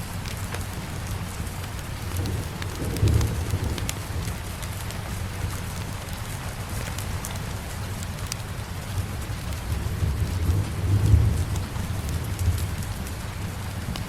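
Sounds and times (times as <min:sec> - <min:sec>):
steady rain: 0:00.0 - 0:14.0
faint clicks: 0:00.1 - 0:08.5
low thunder rumble: 0:00.8 - 0:05.9, 0:09.2 - 0:14.0.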